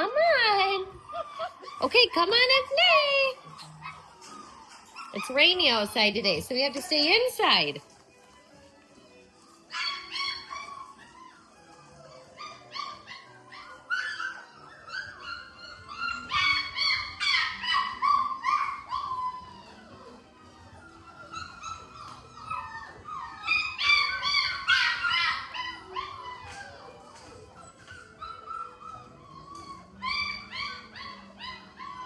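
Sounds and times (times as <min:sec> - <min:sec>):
puppies crying: 0:00.0 - 0:32.0.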